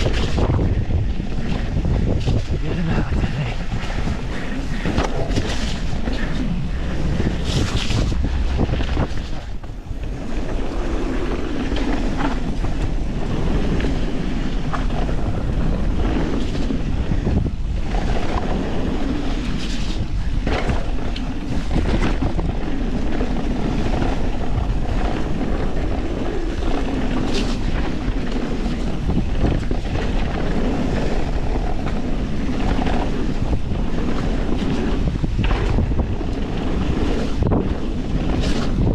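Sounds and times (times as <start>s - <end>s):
bike knocks and rattles: 0.0s - 2.7s, 3.7s - 38.9s
tyres on dirt and rock: 0.0s - 13.8s
wind over microphone: 0.0s - 38.9s.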